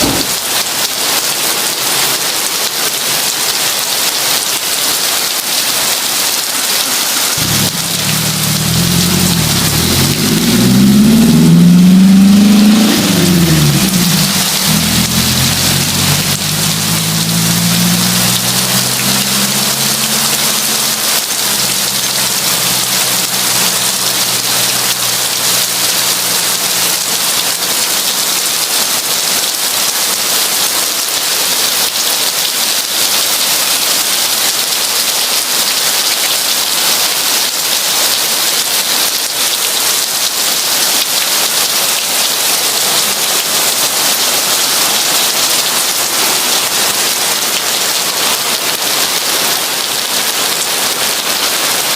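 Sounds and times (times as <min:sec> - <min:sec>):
heavy rain pouring: 0:00.0 - 0:51.9
low rumble: 0:07.4 - 0:26.0.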